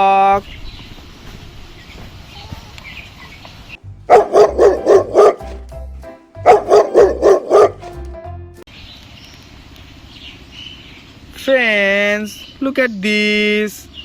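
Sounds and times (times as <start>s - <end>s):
dog barking: 4.1s - 5.7s, 6.4s - 8.1s.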